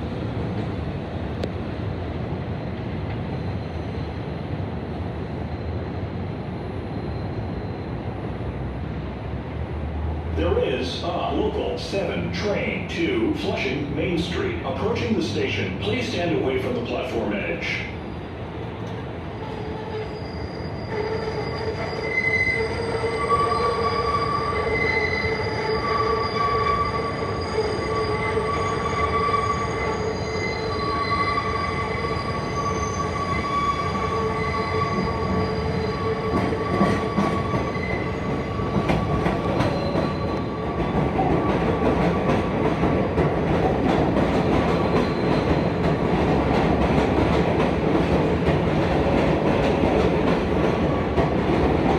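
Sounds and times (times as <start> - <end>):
wheels rumbling on rail: 0.0 - 51.9
train wheels squealing: 6.5 - 8.0, 17.8 - 18.5, 19.2 - 42.4, 44.8 - 45.9.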